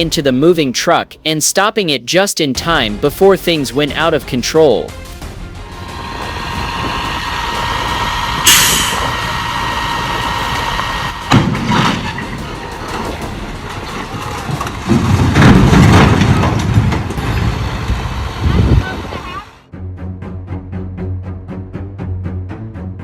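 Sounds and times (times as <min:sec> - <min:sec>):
truck whine: 0:05.0 - 0:23.0
loud low rumble: 0:05.4 - 0:22.8
short sharp hiss: 0:08.5 - 0:09.2.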